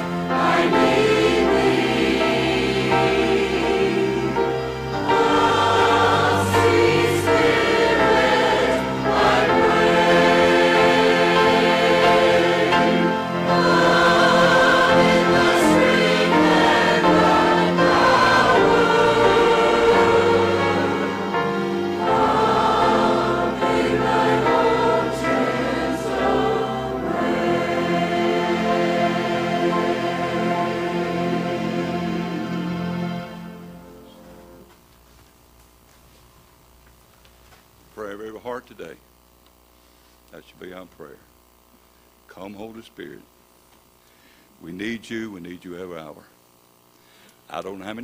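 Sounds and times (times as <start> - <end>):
choir singing a hymn: 0.0 - 34.7
instrumental accompaniment: 0.0 - 34.7.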